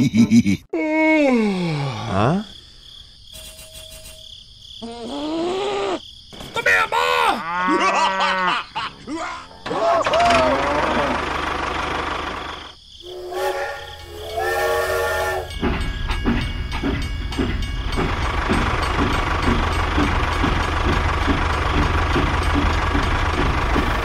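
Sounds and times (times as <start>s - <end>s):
train chugging: 9.3s - 24.0s
train whistle blasts: 13.1s - 15.6s.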